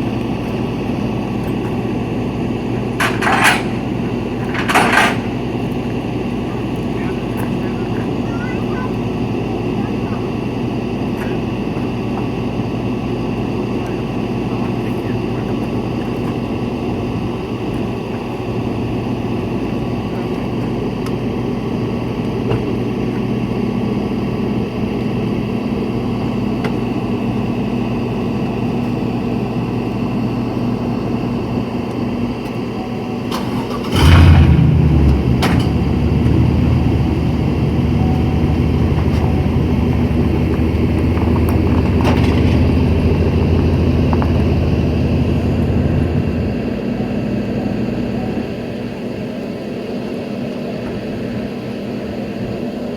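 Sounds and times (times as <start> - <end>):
truck engine running: 0.0 - 52.9
engine cranking and starting: 33.3 - 46.2.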